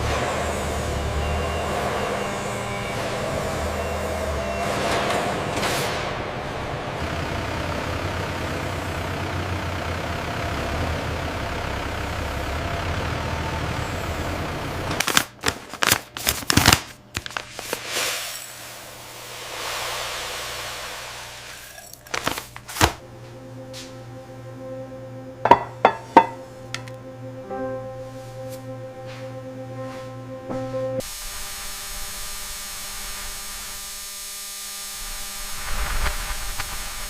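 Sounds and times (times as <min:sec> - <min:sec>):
machinery humming: 0:00.0 - 0:15.2, 0:17.0 - 0:37.0
hiss: 0:17.6 - 0:22.0.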